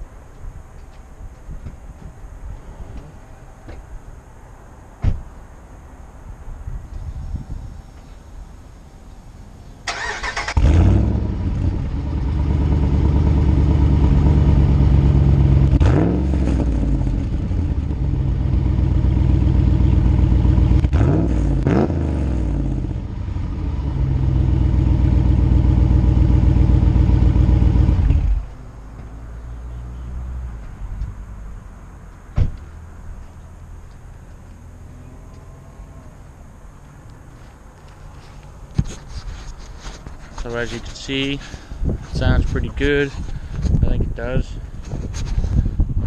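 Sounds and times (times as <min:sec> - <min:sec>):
truck engine idling and revving: 0:09.8 - 0:43.8.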